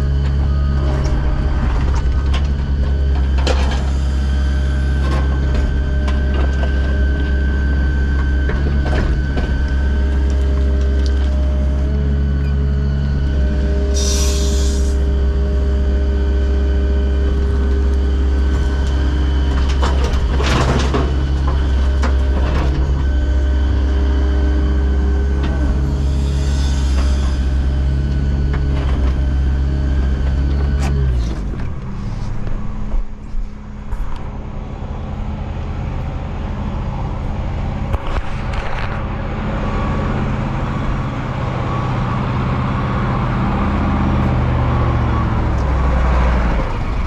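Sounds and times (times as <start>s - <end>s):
heavy diesel engine running: 0.0s - 47.0s
brief hiss: 14.0s - 15.0s.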